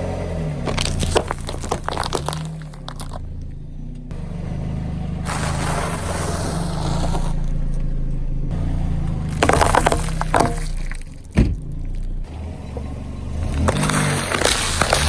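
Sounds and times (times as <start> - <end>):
car engine running slowly: 0.0 - 15.0
crunching snack food under tyres: 0.6 - 3.5, 5.2 - 12.2, 13.4 - 15.0
rough scraping hiss: 5.0 - 7.6.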